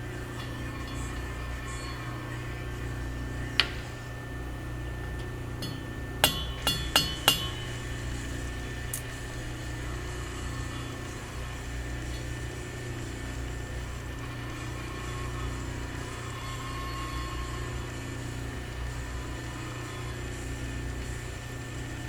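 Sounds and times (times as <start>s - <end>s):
steady low hum: 0.0s - 16.5s
hammer tapping on steel tube: 5.6s - 7.8s.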